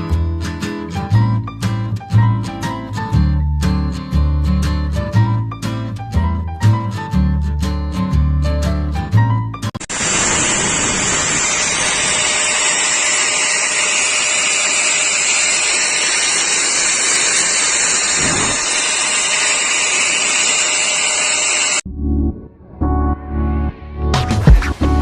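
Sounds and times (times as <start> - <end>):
electric grinder running: 9.8 - 21.8.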